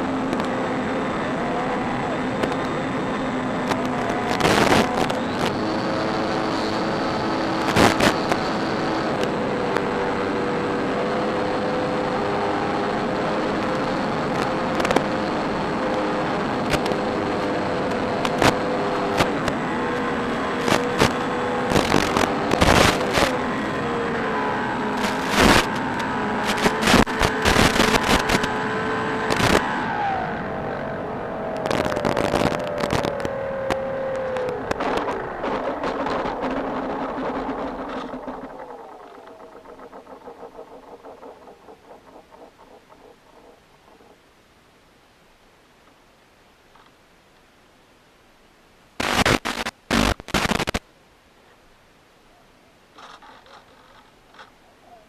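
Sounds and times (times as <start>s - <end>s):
electric model plane whine: 0.0s - 16.2s, 17.0s - 44.1s
sharp crackles: 2.3s - 9.3s, 20.6s - 23.4s, 24.9s - 28.6s, 29.3s - 29.7s, 31.5s - 44.2s, 49.0s - 50.8s, 53.0s - 54.6s.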